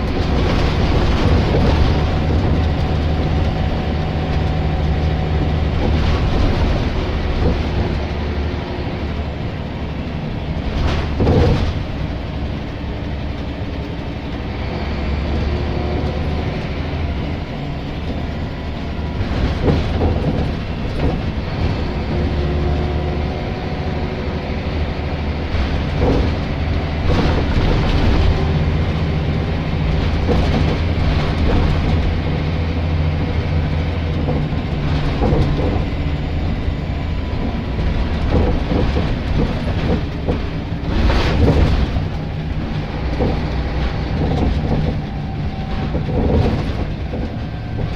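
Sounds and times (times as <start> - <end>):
knocks and rattles: 0.0 - 8.5, 10.2 - 14.4, 15.4 - 23.4, 24.9 - 47.9
bus engine running: 0.0 - 47.9.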